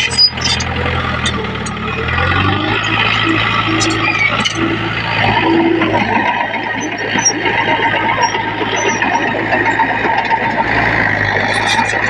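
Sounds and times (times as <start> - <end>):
short high squeaks: 0.0 - 5.7
bulldozer diesel engine running: 0.0 - 12.0.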